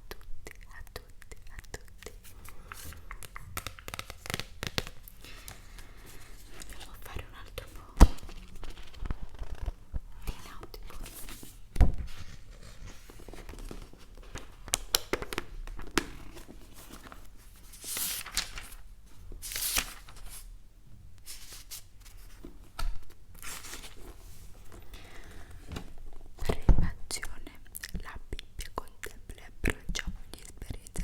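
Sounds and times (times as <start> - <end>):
breathy whispering: 6.0 - 8.0, 10.1 - 11.3.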